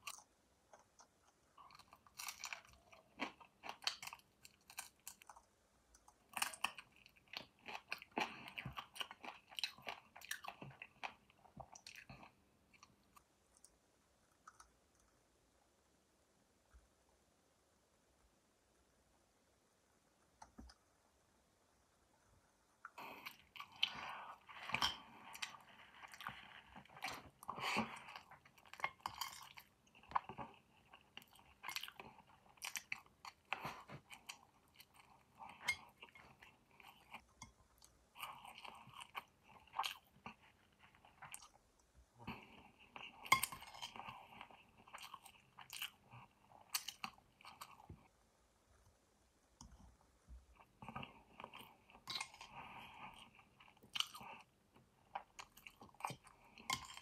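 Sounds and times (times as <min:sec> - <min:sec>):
chewing and biting food: 0:00.0 - 0:05.4, 0:06.0 - 0:13.3, 0:22.9 - 0:41.7, 0:50.6 - 0:57.0.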